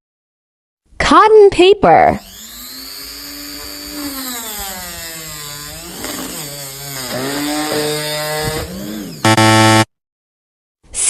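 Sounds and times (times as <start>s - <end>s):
angle grinder whining: 2.2s - 9.9s
loud steady buzzing tone: 2.2s - 9.9s.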